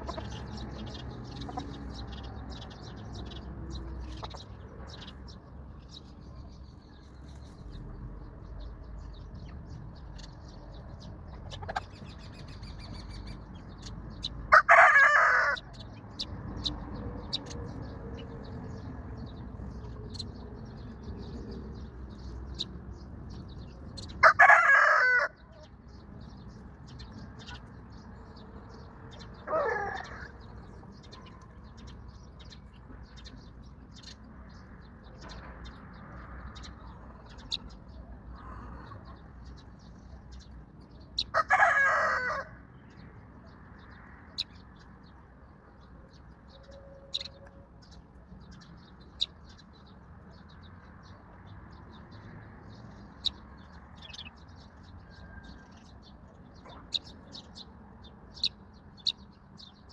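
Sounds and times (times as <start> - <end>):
small birds chirping: 0.0 - 59.9
rooster crowing: 14.5 - 15.6, 24.2 - 25.7, 29.5 - 30.3, 41.3 - 42.6, 55.1 - 55.8.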